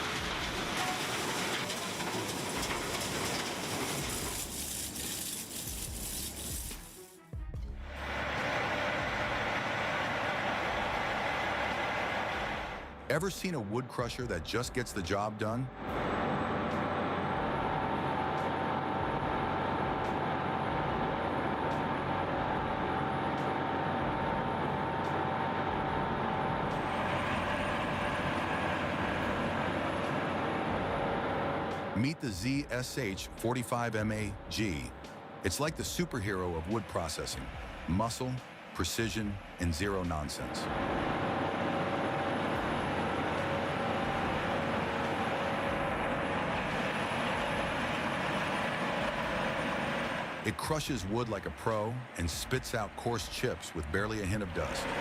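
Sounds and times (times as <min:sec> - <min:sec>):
industrial wood crusher running: 0:00.0 - 0:07.0, 0:07.8 - 0:13.6, 0:14.2 - 0:55.0
shredder grinding material: 0:00.0 - 0:07.2, 0:38.9 - 0:55.0.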